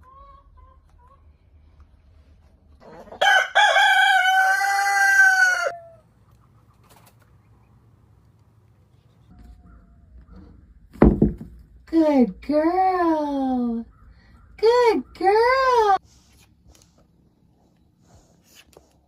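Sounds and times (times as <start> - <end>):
chicken crowing: 2.8 - 6.0.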